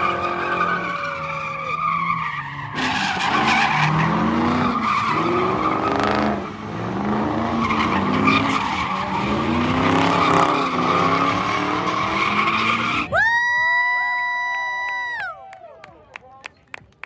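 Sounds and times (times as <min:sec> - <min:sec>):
tires squealing: 0:00.0 - 0:13.2
car engine revving: 0:02.7 - 0:13.1.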